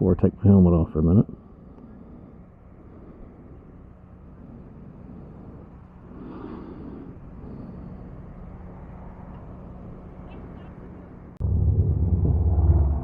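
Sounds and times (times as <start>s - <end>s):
motor vehicle hum: 0.0s - 13.0s.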